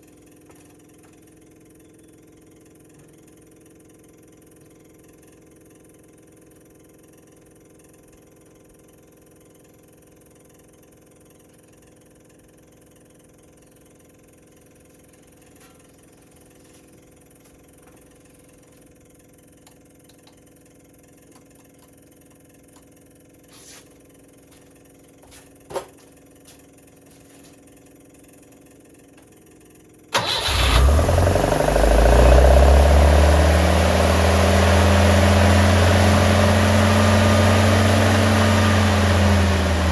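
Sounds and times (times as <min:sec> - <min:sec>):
car engine starting up: 0:30.1 - 0:39.9.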